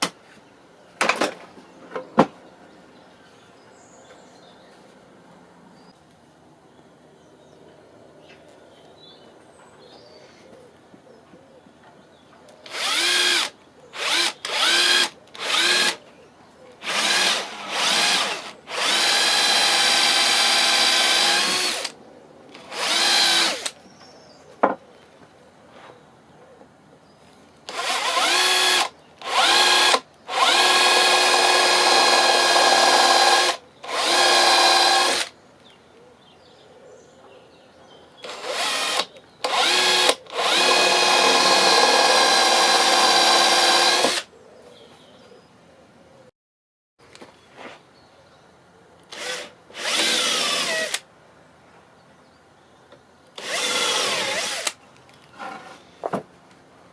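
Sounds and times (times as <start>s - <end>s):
electric drill whining: 12.7s - 16.0s, 16.8s - 21.9s, 22.6s - 23.8s, 27.7s - 35.3s, 38.2s - 44.3s, 49.1s - 51.0s, 53.4s - 54.8s.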